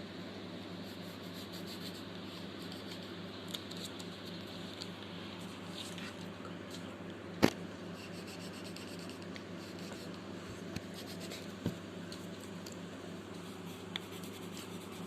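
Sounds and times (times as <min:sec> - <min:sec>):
steady low hum: 0:00.0 - 0:15.0
pencil scratching on paper: 0:00.9 - 0:03.1, 0:08.0 - 0:10.2, 0:10.9 - 0:11.6, 0:13.5 - 0:15.0.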